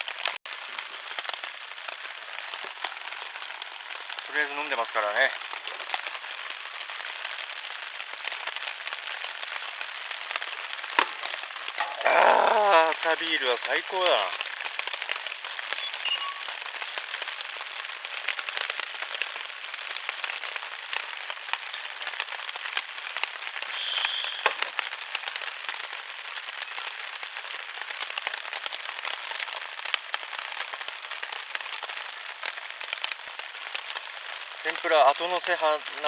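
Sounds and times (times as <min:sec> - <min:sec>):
heavy rain on a vinyl sheet: 0:00.0 - 0:36.0
loud hiss: 0:23.6 - 0:24.7.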